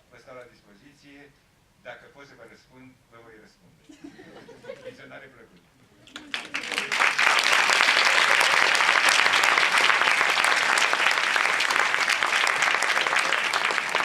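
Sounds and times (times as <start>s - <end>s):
audience applauding: 6.0s - 14.0s.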